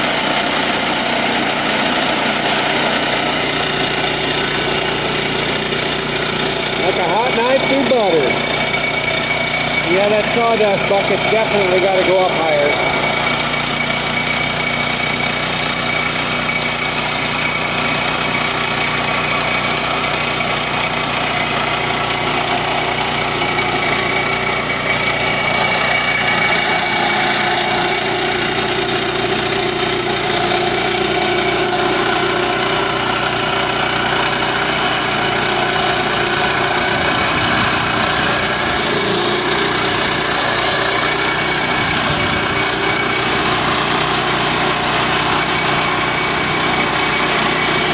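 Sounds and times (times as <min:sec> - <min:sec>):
bandsaw sawmill engine running: 0:00.0 - 0:47.9.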